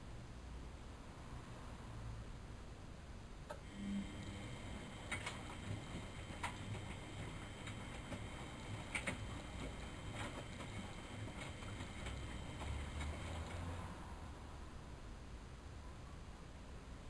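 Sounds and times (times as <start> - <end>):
washing machine drum rumbling: 4.2 - 13.8.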